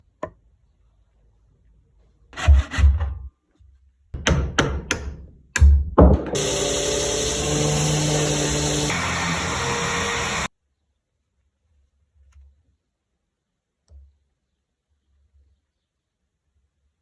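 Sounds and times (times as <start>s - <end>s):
motor-driven tool whirring: 6.4s - 10.5s.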